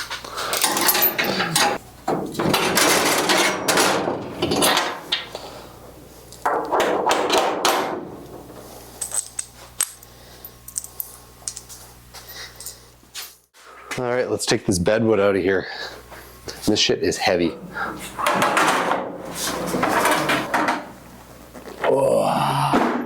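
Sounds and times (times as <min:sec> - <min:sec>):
metal tools clanking and rattling: 0:00.5 - 0:05.6, 0:17.8 - 0:20.9
metal scraping: 0:17.6 - 0:21.0.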